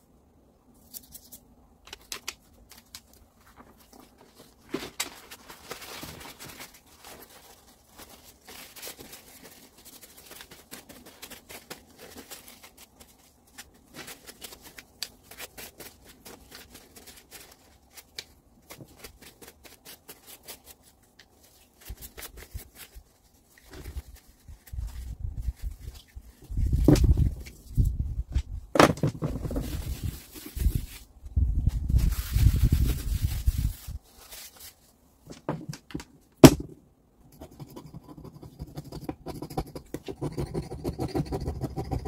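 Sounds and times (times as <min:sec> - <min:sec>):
hands scratching and rustling: 0:00.8 - 0:28.5, 0:29.3 - 0:35.0.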